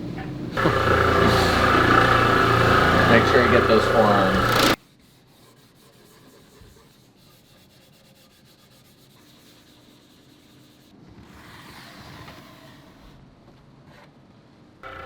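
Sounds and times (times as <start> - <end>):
wood being sanded: 0.6 - 10.8.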